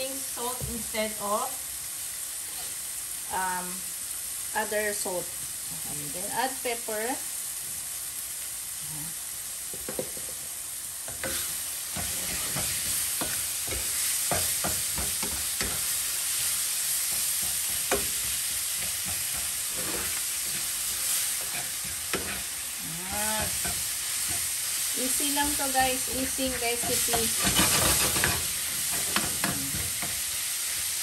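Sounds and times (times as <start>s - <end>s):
meat sizzling in a pan: 0.0s - 31.0s
utensil scraping and clicking on pan: 11.1s - 22.6s, 26.4s - 30.8s.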